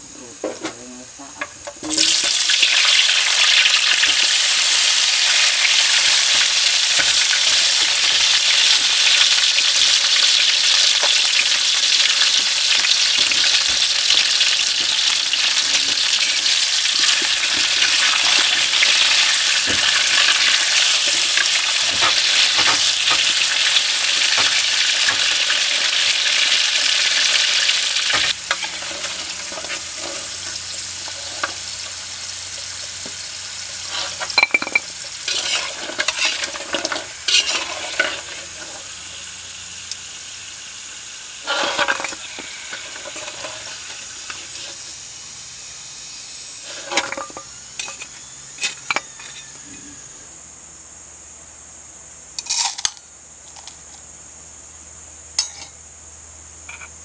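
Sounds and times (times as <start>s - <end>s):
food deep-frying in oil: 1.4s - 49.6s
metal spatula scraping a wok: 28.0s - 31.9s, 33.7s - 38.9s, 41.4s - 44.9s, 46.6s - 49.6s.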